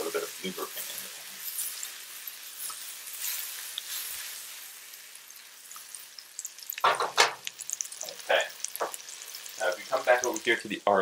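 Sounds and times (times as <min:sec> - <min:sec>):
mushrooms sizzling in a frying pan: 0:00.0 - 0:11.0
sharp knocks on pan: 0:06.8 - 0:07.5, 0:08.8 - 0:09.0.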